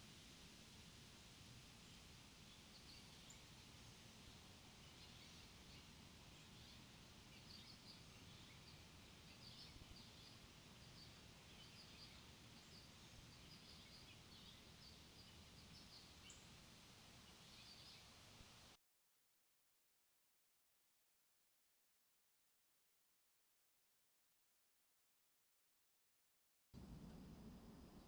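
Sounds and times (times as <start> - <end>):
small birds chirping: 1.8 - 18.7
soft low background rumble: 26.8 - 28.0.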